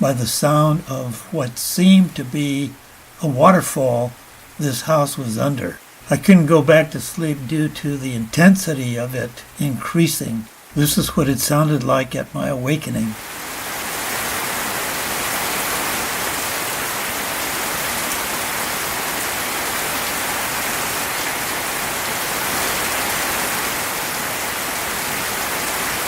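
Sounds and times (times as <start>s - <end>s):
heavy rain on a house: 0.0s - 26.0s.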